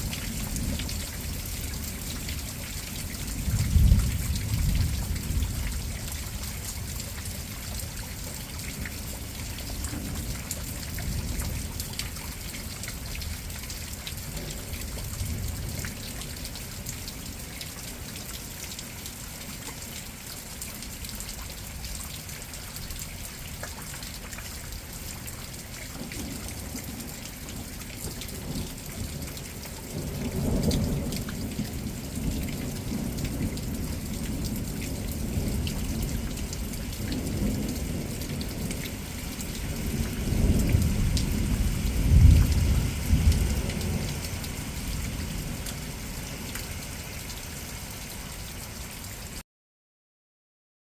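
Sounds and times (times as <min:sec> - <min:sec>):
steady rain: 0:00.0 - 0:49.4
rolling thunder: 0:03.3 - 0:05.9, 0:30.0 - 0:46.5.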